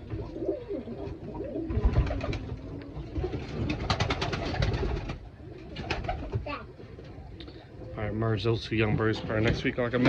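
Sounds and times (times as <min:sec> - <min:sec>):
pigeons cooing: 0:00.0 - 0:06.5.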